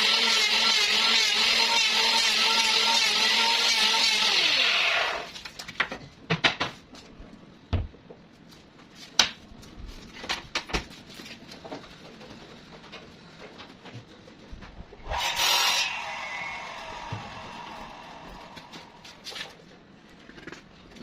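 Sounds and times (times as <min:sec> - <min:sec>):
power tool winding down: 0:00.0 - 0:05.3, 0:15.1 - 0:18.7.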